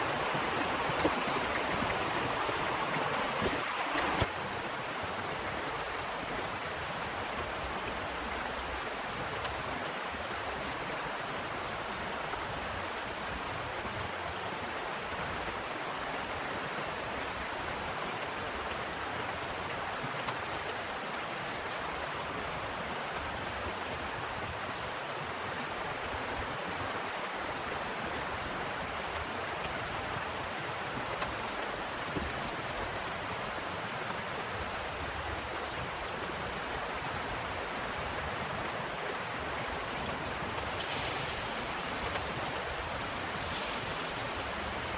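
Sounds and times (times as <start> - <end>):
heavy rain falling: 0.0 - 6.2, 28.2 - 44.9.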